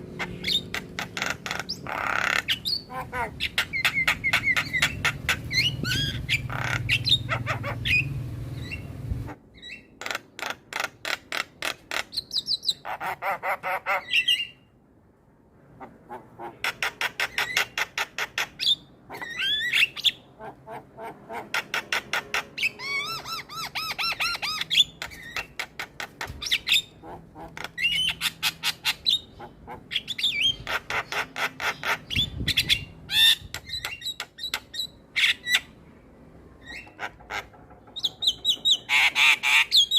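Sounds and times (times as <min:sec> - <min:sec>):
mynas calling: 0:00.1 - 0:14.6.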